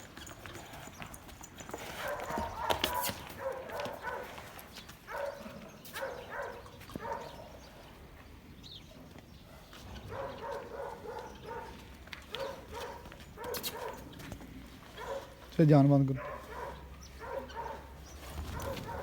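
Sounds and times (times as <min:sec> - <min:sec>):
dog barking: 0:02.0 - 0:04.4, 0:05.1 - 0:07.6, 0:09.5 - 0:14.1, 0:14.9 - 0:15.4, 0:16.2 - 0:19.0.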